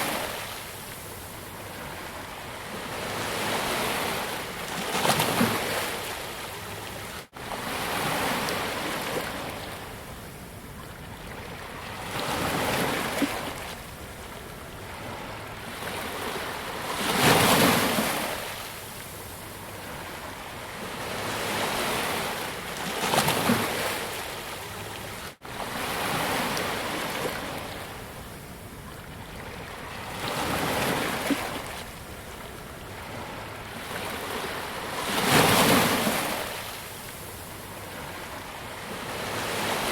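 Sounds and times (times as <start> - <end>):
ocean waves crashing on beach: 14.9 - 28.4, 29.4 - 39.9.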